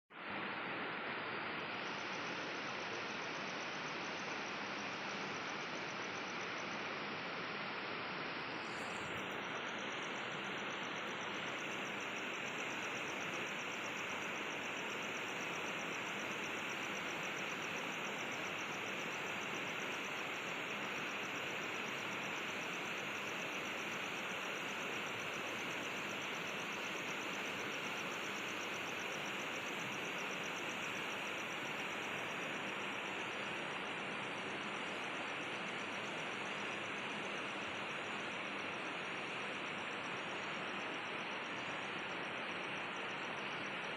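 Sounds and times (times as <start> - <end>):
rushing outdoor ambience: 0.2 - 43.9
insect trill: 1.0 - 43.9.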